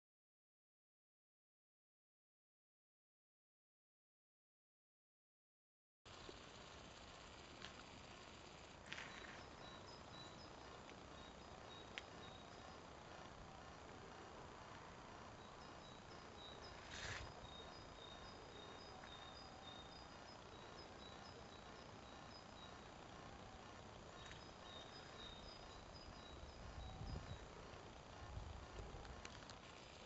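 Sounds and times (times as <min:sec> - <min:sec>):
small birds chirping: 0:06.1 - 0:30.0
steady hiss: 0:06.1 - 0:30.0.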